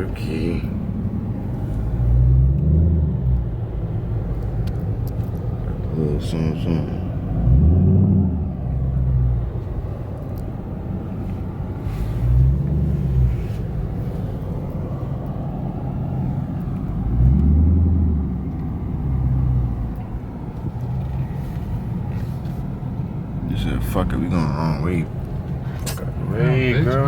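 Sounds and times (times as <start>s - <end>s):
car interior driving rumble: 0.0s - 27.0s
engine swells: 0.0s - 27.0s.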